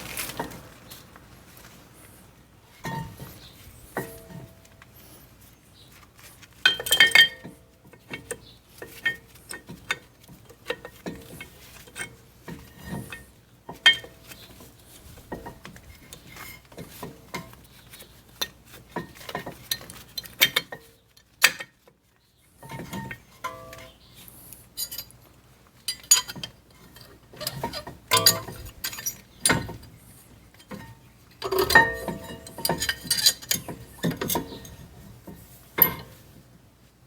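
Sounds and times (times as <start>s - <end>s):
metal parts clinking: 24.8s - 25.2s, 25.9s - 29.6s, 31.4s - 34.5s.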